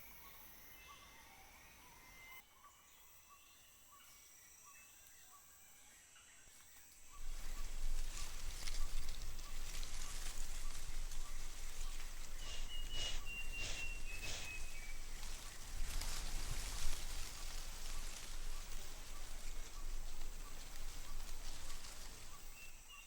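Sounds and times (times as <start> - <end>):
steady hiss: 7.0 - 22.9
insect ticking: 7.3 - 16.1
high insect tones: 7.3 - 16.9
bird whistle: 12.4 - 15.0.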